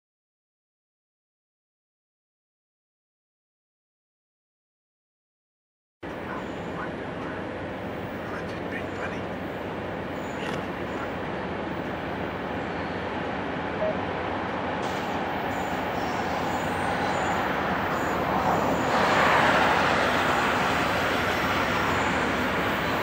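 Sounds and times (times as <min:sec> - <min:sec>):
distant train rumble: 0:06.0 - 0:23.0
car passing: 0:06.1 - 0:23.0.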